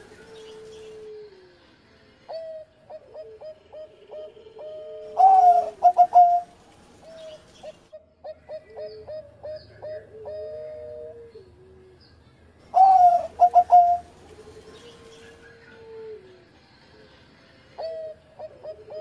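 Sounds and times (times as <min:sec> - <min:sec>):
dove cooing: 0:00.0 - 0:01.6, 0:02.3 - 0:12.0, 0:12.7 - 0:16.5, 0:17.8 - 0:19.0.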